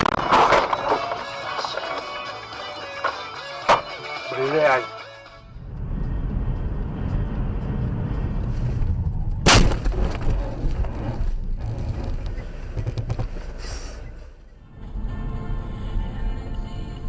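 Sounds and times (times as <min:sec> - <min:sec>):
vehicle collision crash: 0:00.0 - 0:01.2, 0:09.4 - 0:11.2
car driving rumble: 0:05.2 - 0:17.0.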